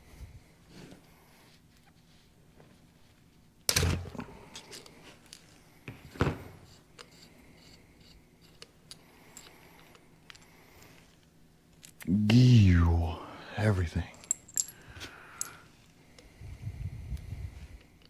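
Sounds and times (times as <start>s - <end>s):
metal tools being handled: 14.1s - 15.6s.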